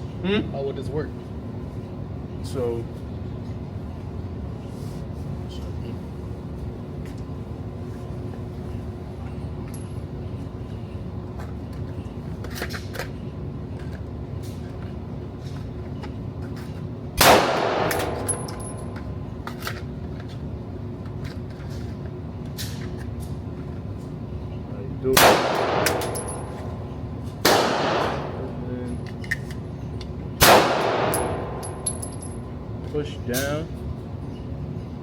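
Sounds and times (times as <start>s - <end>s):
steady background hum: 0.0s - 35.0s
loud gunshot: 17.2s - 18.2s, 25.2s - 26.1s, 27.4s - 28.4s, 30.4s - 31.6s
distant gunshots: 27.4s - 28.3s, 30.4s - 31.4s.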